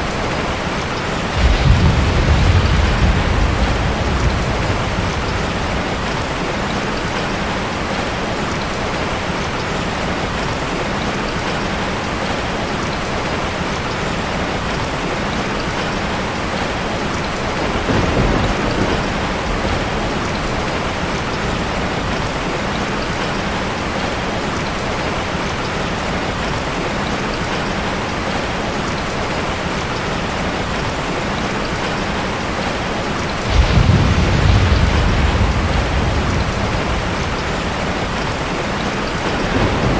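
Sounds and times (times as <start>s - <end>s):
heavy rain falling: 0.0s - 39.9s
thunder rumble: 0.1s - 8.1s, 17.4s - 22.4s, 33.4s - 39.9s.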